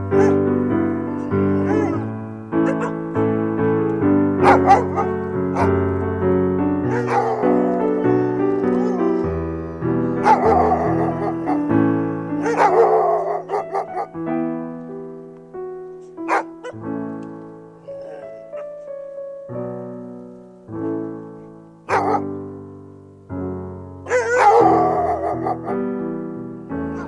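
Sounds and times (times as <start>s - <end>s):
piano music: 0.0s - 27.0s
dog barking: 0.2s - 0.5s, 1.2s - 3.0s, 4.4s - 6.0s, 6.9s - 7.9s, 8.7s - 9.2s, 10.0s - 11.7s, 12.4s - 14.2s, 16.2s - 16.8s, 17.9s - 18.8s, 21.9s - 22.4s, 24.1s - 25.8s.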